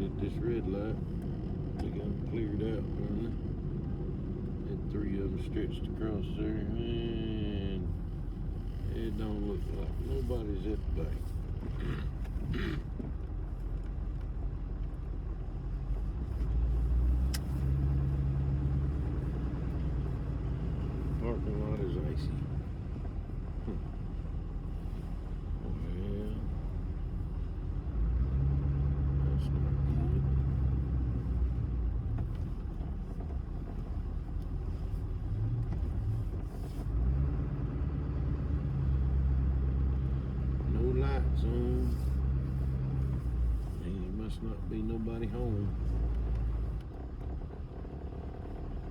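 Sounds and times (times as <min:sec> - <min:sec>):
car engine rumble: 0:00.0 - 0:48.9
road noise: 0:00.0 - 0:48.9.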